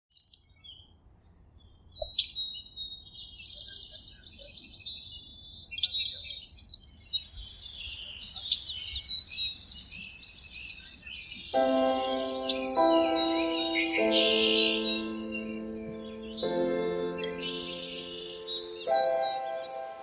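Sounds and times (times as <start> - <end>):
birds chirping and singing: 6.8 - 20.0.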